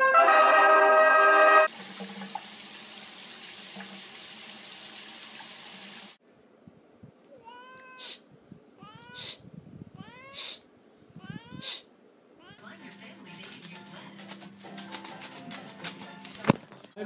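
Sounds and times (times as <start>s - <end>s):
rushing noise like running water: 1.7s - 6.2s
cat meowing: 7.3s - 8.2s, 8.8s - 9.4s, 10.0s - 10.6s, 11.2s - 11.8s, 12.4s - 12.6s.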